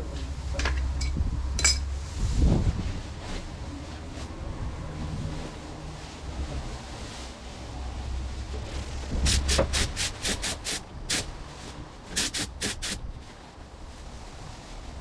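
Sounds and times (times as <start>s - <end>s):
paint spray gun hissing bursts: 9.3s - 11.3s, 12.1s - 13.0s.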